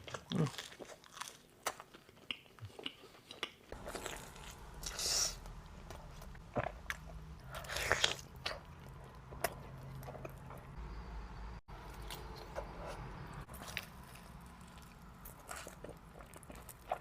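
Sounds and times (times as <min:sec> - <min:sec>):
crunchy chewing: 0:00.0 - 0:05.3, 0:11.8 - 0:17.0.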